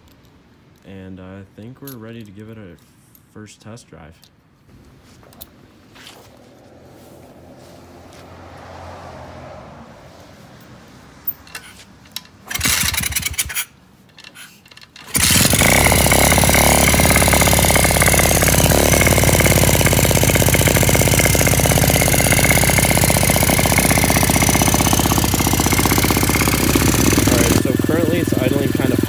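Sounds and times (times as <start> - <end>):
pit bike engine starting and idling: 11.4 - 29.0.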